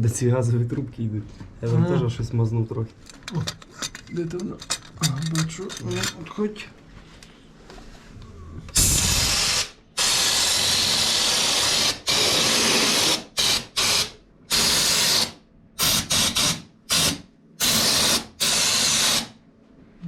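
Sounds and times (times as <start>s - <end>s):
spray gun hissing: 8.8s - 19.3s.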